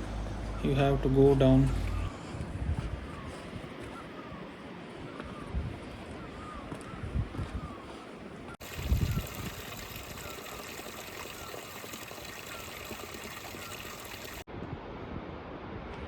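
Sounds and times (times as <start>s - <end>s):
low rumble: 0.0s - 3.0s
stream water rushing: 8.6s - 14.4s.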